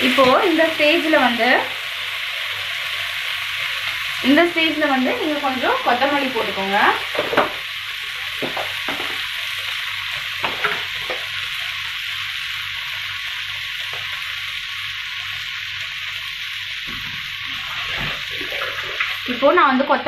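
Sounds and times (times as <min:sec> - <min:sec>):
vegetables sizzling in a pan: 0:00.0 - 0:20.0.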